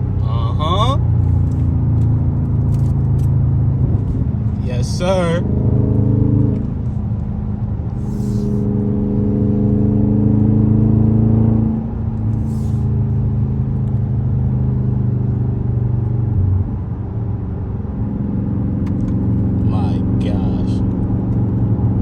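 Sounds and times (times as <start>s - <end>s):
car exhaust droning: 0.0s - 22.0s.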